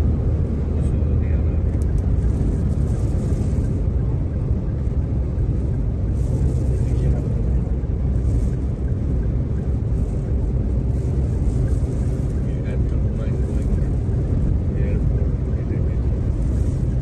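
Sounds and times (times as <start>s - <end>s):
car driving rumble: 0.0s - 17.0s
road and wind noise: 0.0s - 17.0s.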